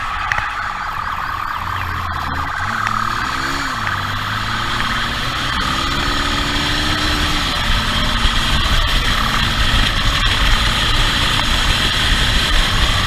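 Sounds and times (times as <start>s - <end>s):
police siren: 0.0s - 9.3s
vehicle engine speeding up: 0.0s - 13.0s.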